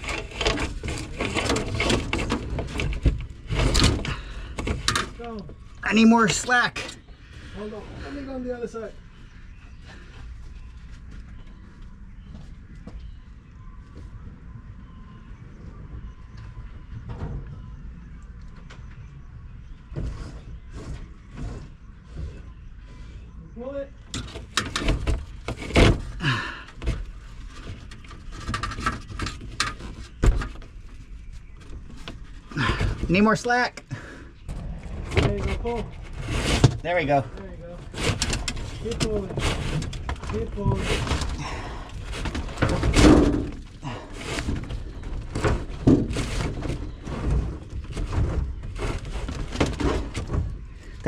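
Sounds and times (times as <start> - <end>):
cable scraping against metal frame: 0.0 - 8.4, 24.1 - 51.0.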